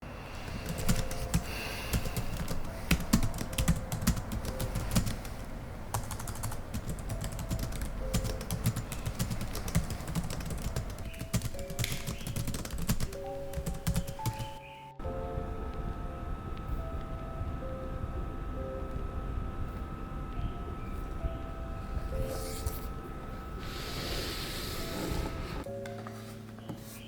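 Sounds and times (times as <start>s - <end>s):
soft background music: 0.1s - 27.0s
keyboard typing clicks: 0.6s - 5.3s, 5.9s - 14.6s.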